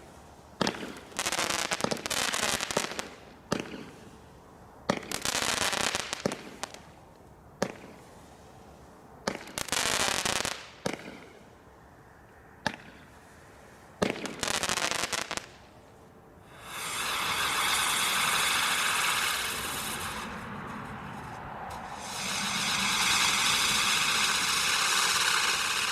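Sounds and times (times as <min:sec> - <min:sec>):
fireworks crackling: 0:00.0 - 0:04.2, 0:04.9 - 0:11.3, 0:14.0 - 0:25.9
fireworks bangs: 0:14.0 - 0:15.6, 0:16.5 - 0:25.9.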